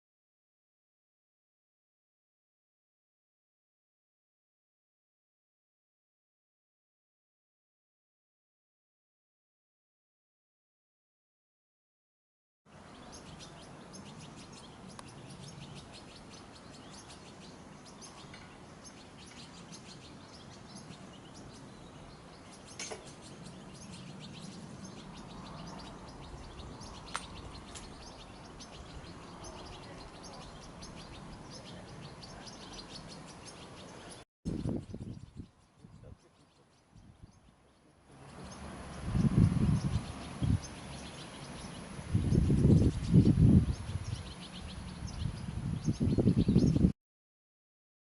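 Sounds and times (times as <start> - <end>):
songbirds chirping and twittering: 12.7 - 47.0.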